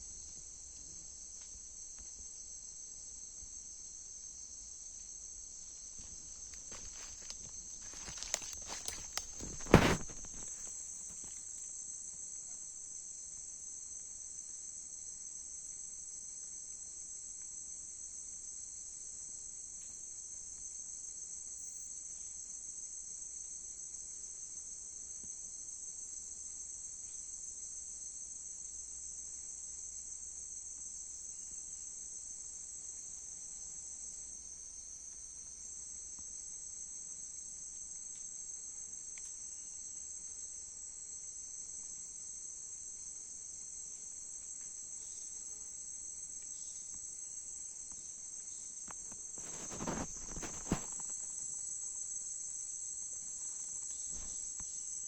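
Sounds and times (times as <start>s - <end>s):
high-pitched insect chorus: 1.9s - 12.0s, 25.5s - 55.0s.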